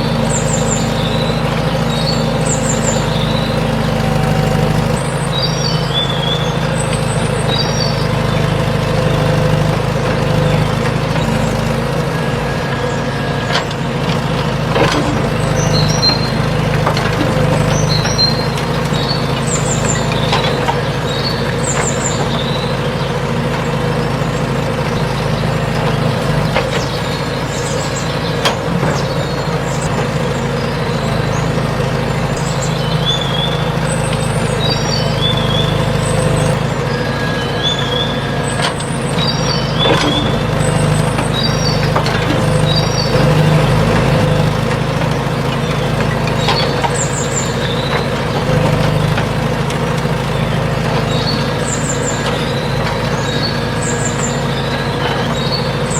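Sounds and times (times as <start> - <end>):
engine running steadily: 0.0 - 55.9
sharp clicks and knocks: 13.5 - 22.5, 38.6 - 50.1.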